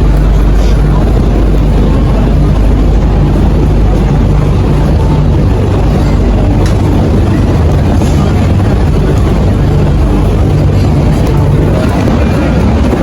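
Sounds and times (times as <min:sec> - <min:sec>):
rushing air rumble: 0:00.0 - 0:13.0.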